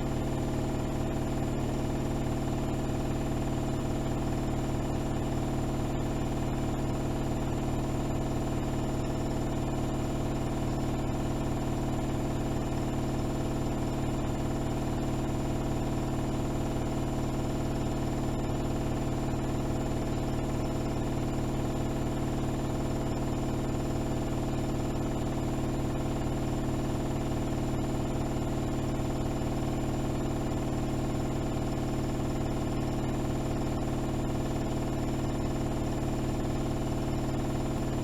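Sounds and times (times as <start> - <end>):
washing machine spinning: 0.0 - 38.0.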